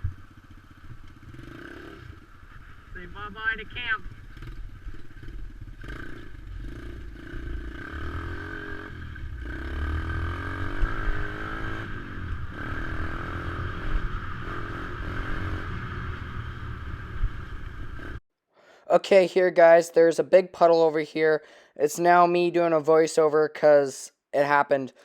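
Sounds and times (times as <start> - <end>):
dirt bike engine revving: 0.0 - 18.2.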